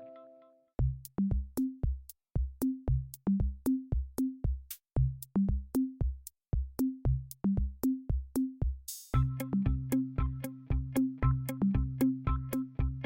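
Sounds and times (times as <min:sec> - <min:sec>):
electronic drum machine beat: 0:00.8 - 0:13.0
plucked bass and synth notes: 0:09.2 - 0:13.0.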